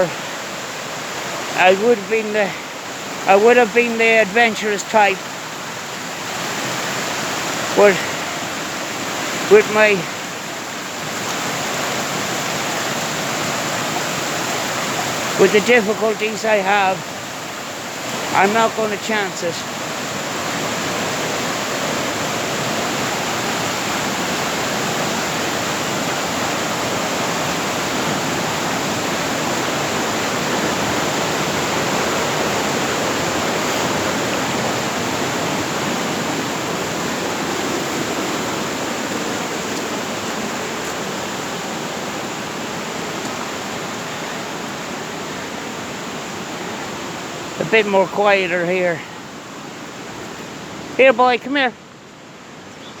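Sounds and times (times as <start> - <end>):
river water rushing: 0.0 - 53.0.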